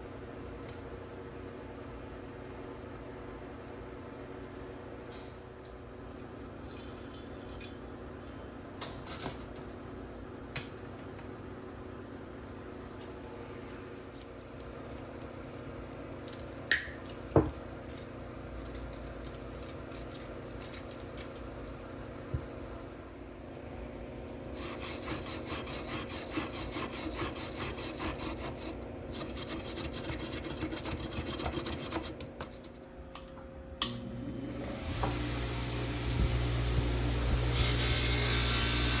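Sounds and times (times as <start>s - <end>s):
steady low hum: 17.8s - 39.0s.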